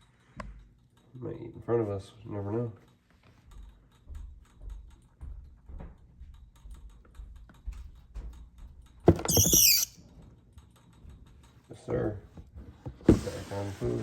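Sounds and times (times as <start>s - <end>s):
rat squealing: 9.2s - 9.9s.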